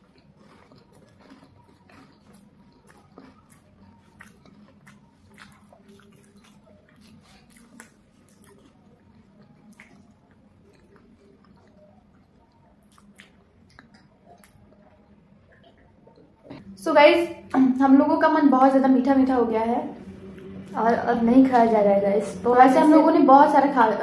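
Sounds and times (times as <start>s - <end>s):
chewing chocolate: 0.0s - 16.6s
soft mouth clicks and smacks: 0.0s - 16.6s.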